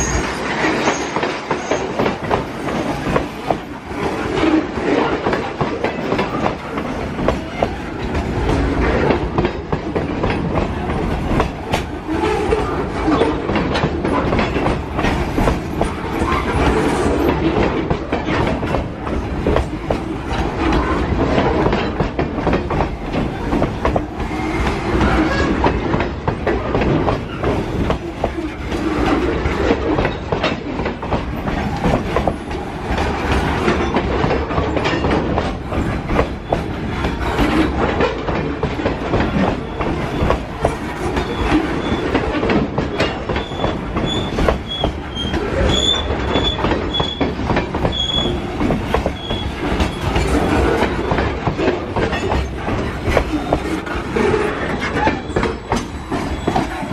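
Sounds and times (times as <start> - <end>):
train rumble: 0.0 - 56.9
train wheels clicking on rails: 0.0 - 56.9.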